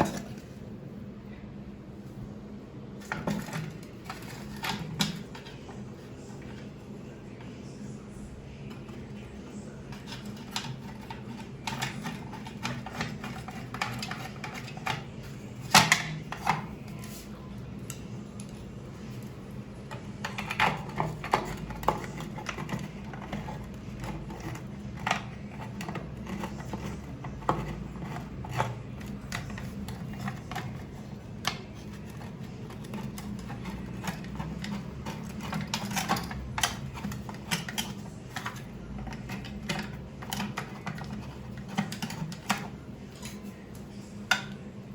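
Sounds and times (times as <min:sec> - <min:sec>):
low steady hum: 0:00.0 - 0:44.9.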